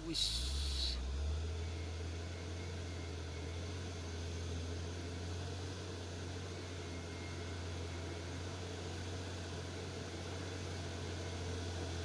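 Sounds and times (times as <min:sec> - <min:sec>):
truck diesel engine droning: 0:00.0 - 0:01.2.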